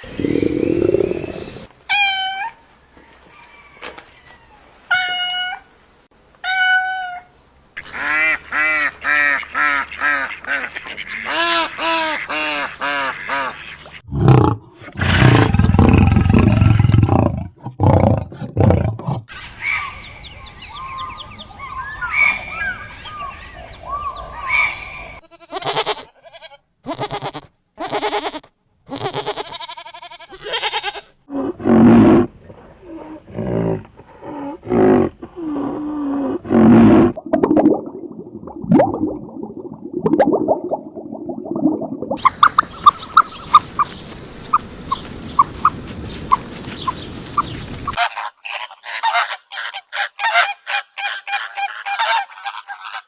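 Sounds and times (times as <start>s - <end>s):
big cat roaring: 14.1s - 19.2s, 31.3s - 37.2s.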